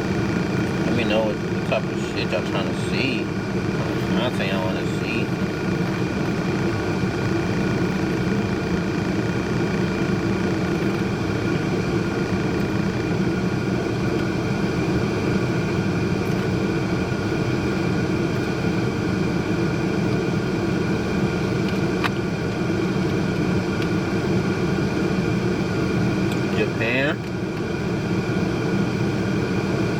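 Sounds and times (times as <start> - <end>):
low machine rumble: 0.0 - 29.9.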